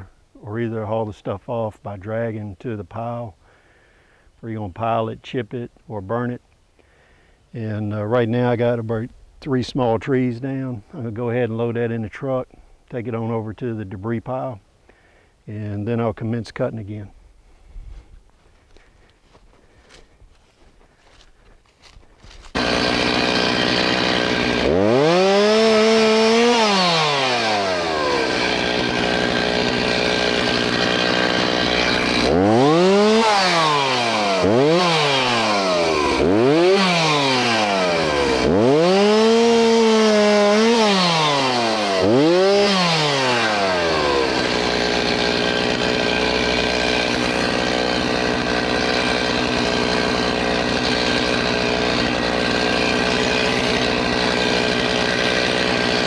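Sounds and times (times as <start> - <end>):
chainsaw revving and idling: 19.3 - 56.0.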